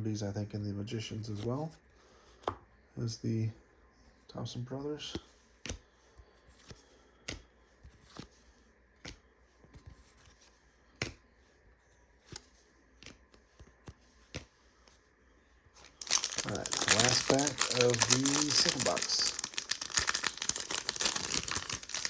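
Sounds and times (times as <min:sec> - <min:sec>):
cards snapping: 0:15.8 - 0:22.0.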